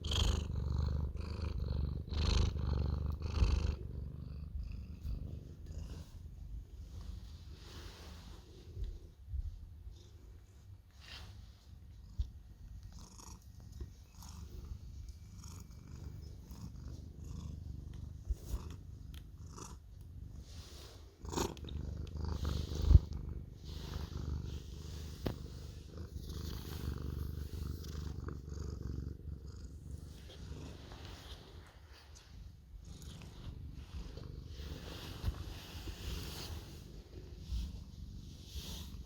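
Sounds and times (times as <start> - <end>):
cat purring: 0.0 - 39.0.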